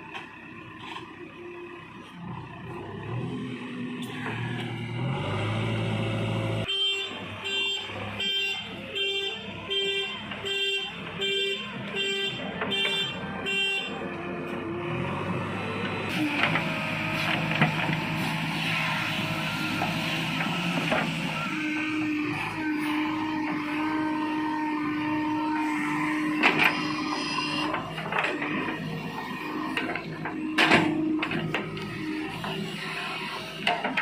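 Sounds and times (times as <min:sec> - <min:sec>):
engine noise: 0:00.0 - 0:34.0
vehicle horn toots: 0:06.6 - 0:14.1, 0:23.7 - 0:28.7.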